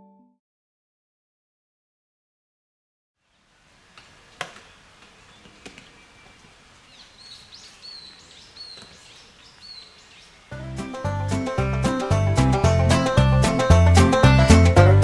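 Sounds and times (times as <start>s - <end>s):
bird calling with whistles: 3.8s - 11.0s
sharp clicks: 3.9s - 6.7s.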